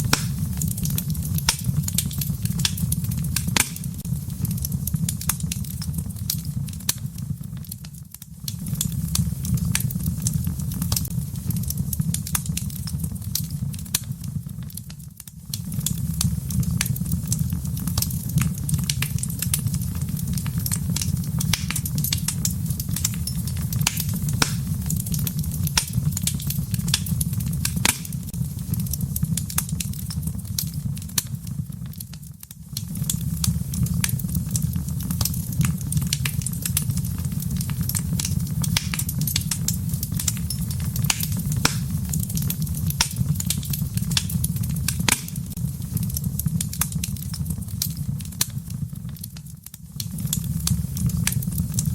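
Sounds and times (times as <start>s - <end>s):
fire crackling and popping: 0.0s - 51.9s
low rumble of flames: 0.0s - 51.9s.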